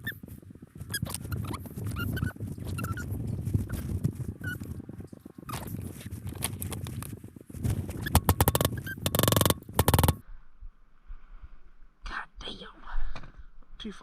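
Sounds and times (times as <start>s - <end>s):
metallic clicking of hand tools: 8.2s - 10.2s.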